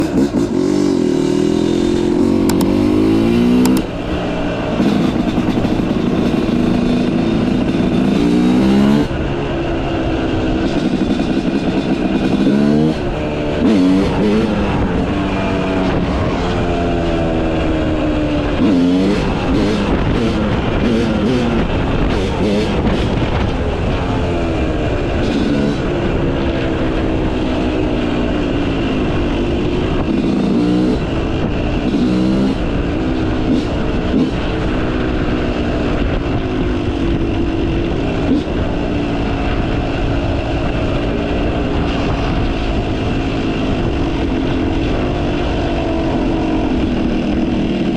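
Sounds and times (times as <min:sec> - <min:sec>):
motocross engine revving: 0:00.0 - 0:26.5.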